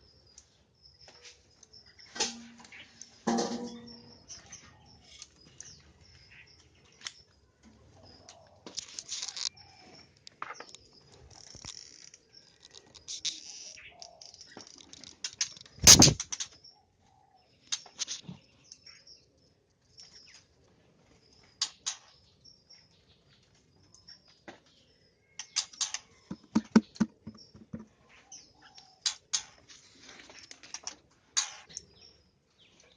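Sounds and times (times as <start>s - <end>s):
birds chirping: 0.0s - 8.5s, 9.1s - 20.4s, 21.2s - 29.6s
knocks in a cage: 3.2s - 4.0s, 26.3s - 27.9s
wing flutters: 14.7s - 16.5s.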